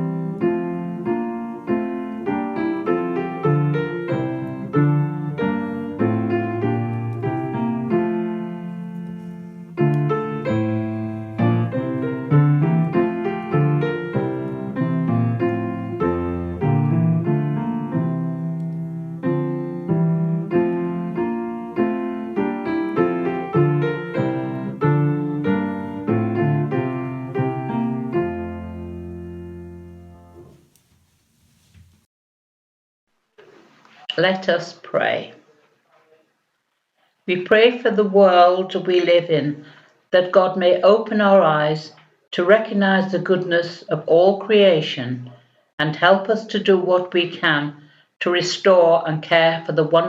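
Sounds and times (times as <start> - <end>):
solo piano music: 0.0 - 30.8.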